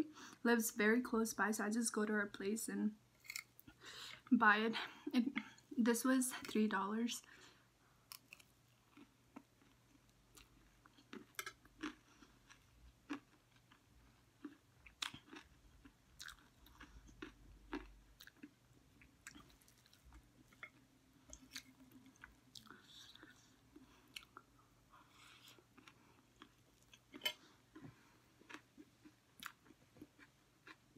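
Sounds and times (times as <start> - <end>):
crunchy snack chewing: 8.1 - 13.8, 14.4 - 18.6.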